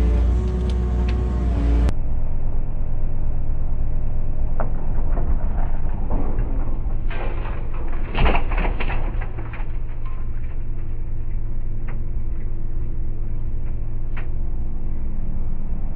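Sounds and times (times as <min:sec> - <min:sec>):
excavator diesel engine running: 0:00.0 - 0:07.5
sharp cracks and knocks: 0:04.5 - 0:11.0.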